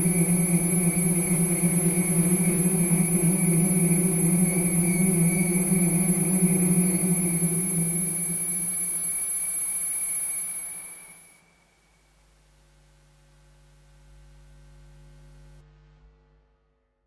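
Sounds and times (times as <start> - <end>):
synthesizer drone with buzzing hum: 0.0 - 11.4.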